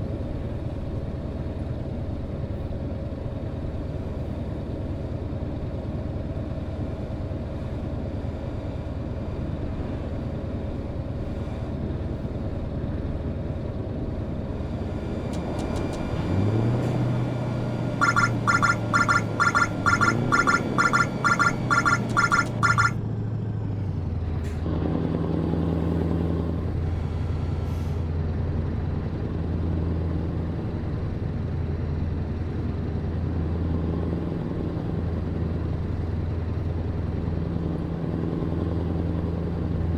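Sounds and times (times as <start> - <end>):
truck engine running: 12.7 - 23.0
electronic beeps: 18.0 - 23.0.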